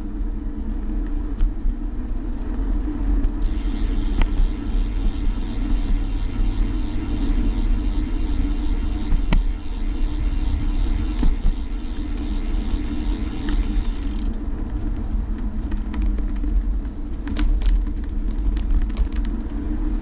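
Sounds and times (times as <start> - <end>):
road rumble: 0.0 - 14.9
bicycle clicks and rattles: 0.0 - 15.0
wind noise: 0.0 - 20.0.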